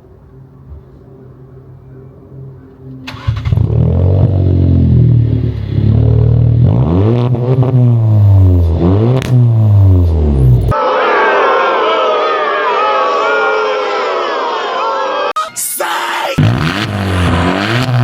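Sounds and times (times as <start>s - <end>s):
loud car engine revving: 3.1s - 10.7s, 16.4s - 18.0s.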